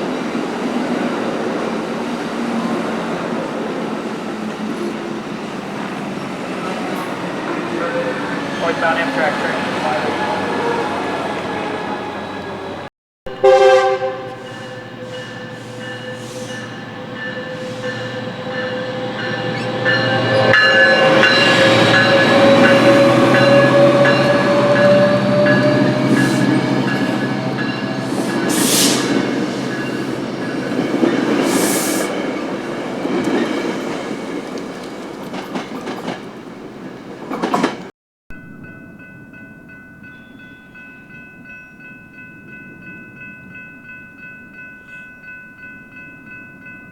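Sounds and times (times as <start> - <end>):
locomotive and wheels on rail: 0.0 - 46.9
train horn blast: 6.8 - 12.2, 13.3 - 29.3.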